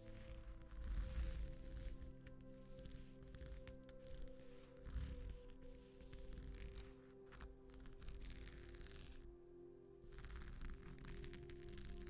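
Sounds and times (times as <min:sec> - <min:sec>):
sequin sheet scratching: 0:00.0 - 0:09.3, 0:10.0 - 0:12.0
calm background music: 0:00.0 - 0:12.0.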